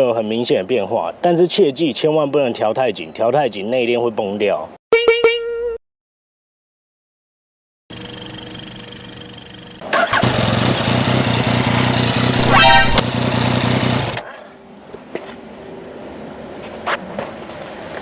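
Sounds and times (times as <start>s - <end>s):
brief high-pitched tone: 4.9s - 5.8s, 12.4s - 13.0s
three-cylinder engine running: 7.9s - 14.2s.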